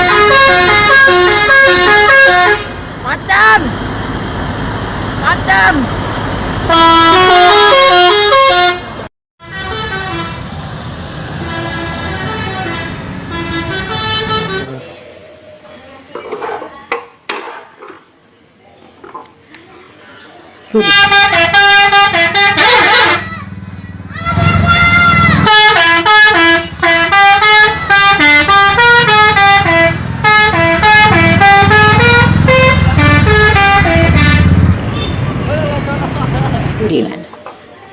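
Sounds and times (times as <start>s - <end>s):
musical bus horn tune: 0.0s - 2.8s, 6.7s - 10.6s, 11.3s - 14.7s, 20.8s - 23.5s, 24.2s - 35.2s
engine and road noise: 0.0s - 37.9s.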